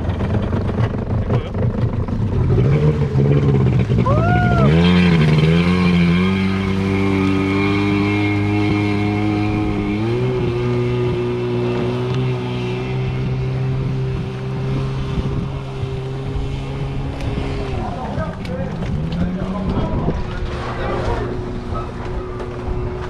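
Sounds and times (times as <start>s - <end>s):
jet ski engine running: 0.0s - 23.0s.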